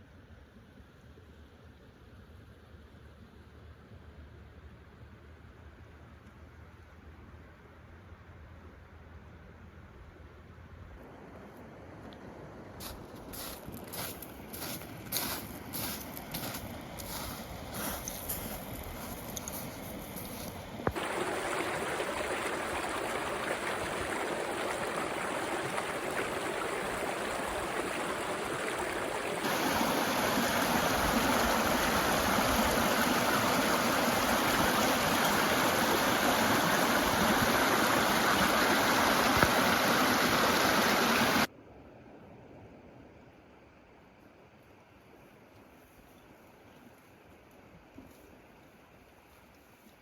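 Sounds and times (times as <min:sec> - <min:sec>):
running water rushing: 0:13.2 - 0:41.5.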